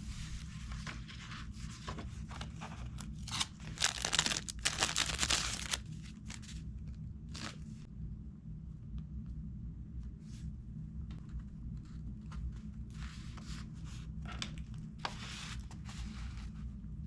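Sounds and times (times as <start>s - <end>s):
steady low hum: 0.0s - 17.0s
crinkling and rustling: 0.4s - 6.6s.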